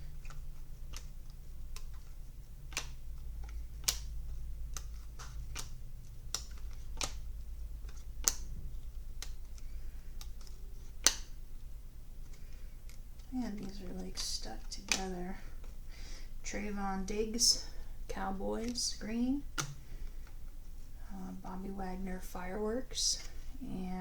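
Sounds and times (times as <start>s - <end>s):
cards flipping and clicking: 0.0s - 15.8s, 18.6s - 20.8s
steady low hum: 0.0s - 24.0s
card snaps: 9.1s - 11.4s.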